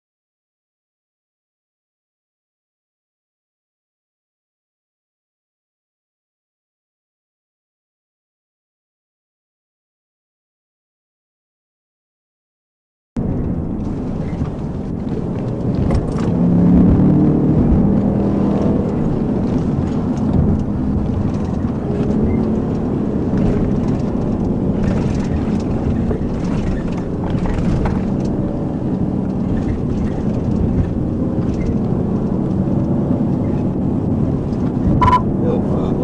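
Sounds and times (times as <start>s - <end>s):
car engine and road noise: 13.2s - 36.0s.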